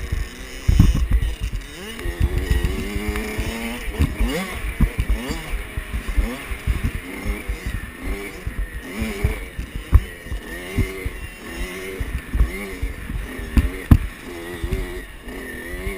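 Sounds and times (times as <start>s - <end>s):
dirt bike engine revving: 0.0s - 15.9s
heavy low thudding: 3.9s - 11.2s.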